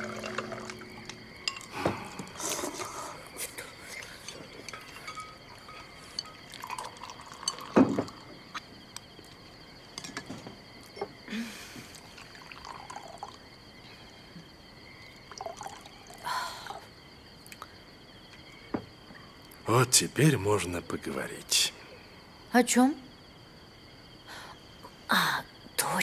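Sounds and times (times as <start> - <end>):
drink pouring: 0.0 - 8.5, 11.9 - 13.4, 15.1 - 16.8
crickets chirping: 0.0 - 26.0.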